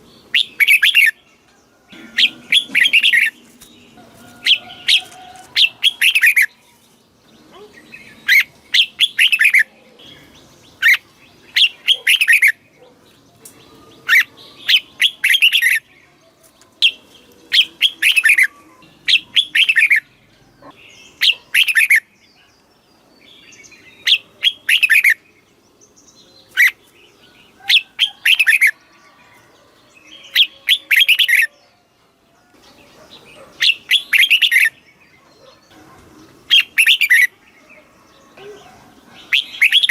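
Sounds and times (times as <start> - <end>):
bird singing whistled notes: 33.6 - 35.6, 36.5 - 37.3, 39.3 - 39.9.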